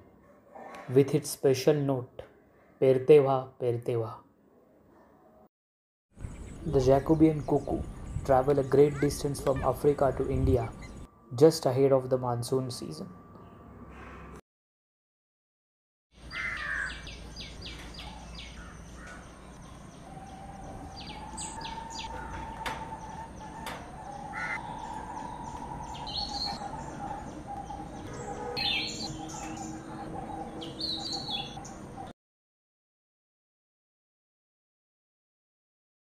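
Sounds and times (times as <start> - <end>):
birds calling rapid high notes: 6.3 - 11.1, 16.2 - 32.1.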